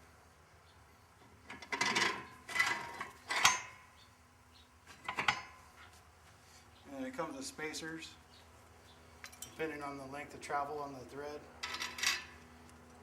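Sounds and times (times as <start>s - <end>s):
metal clanks and scrapes: 1.5s - 3.7s, 11.6s - 12.4s.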